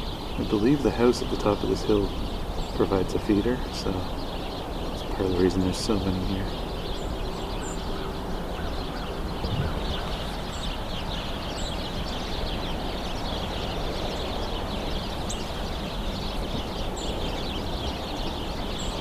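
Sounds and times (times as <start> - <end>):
flock of small birds chattering: 0.0 - 19.0.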